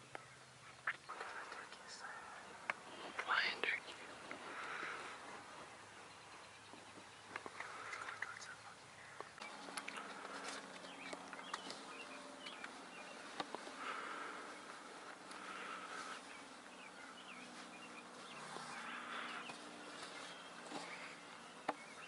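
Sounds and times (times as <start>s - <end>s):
low steady hum: 0.0s - 22.0s
small birds chirping: 0.0s - 22.0s
scattered ticks: 6.7s - 15.7s.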